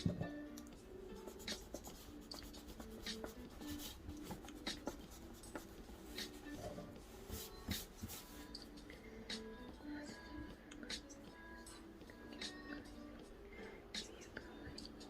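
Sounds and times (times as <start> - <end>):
pen scratching on paper: 1.2 - 8.3.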